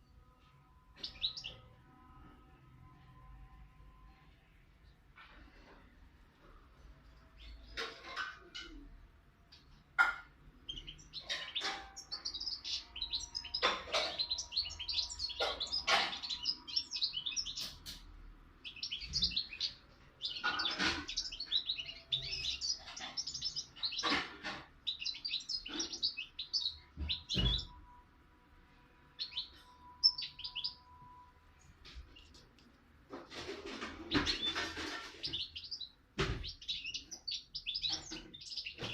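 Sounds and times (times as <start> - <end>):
songbird twittering and trilling: 1.0 - 1.8, 10.5 - 28.0, 29.1 - 32.6, 33.3 - 38.9.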